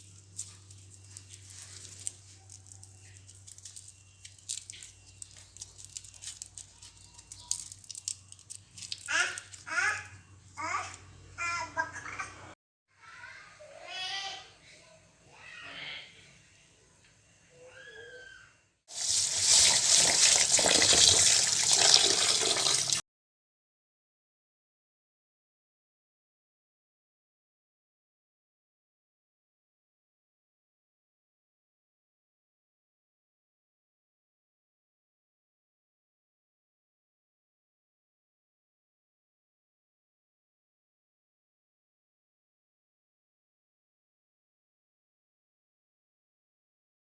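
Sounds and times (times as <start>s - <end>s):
faint clicks and crackles: 0.0s - 9.7s
rustling: 0.0s - 9.7s, 18.9s - 23.0s
tap water running into sink: 18.9s - 23.0s.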